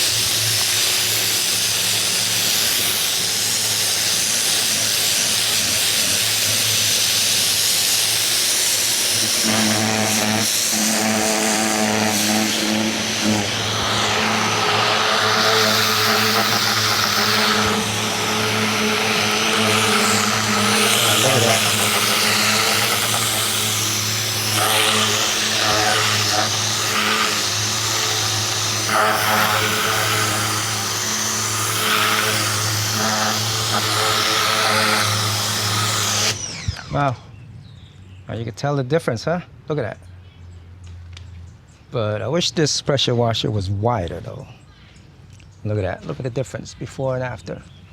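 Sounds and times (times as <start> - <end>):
high-pressure water jet hissing: 0.0 - 37.2
pressure washer motor humming: 0.0 - 37.3.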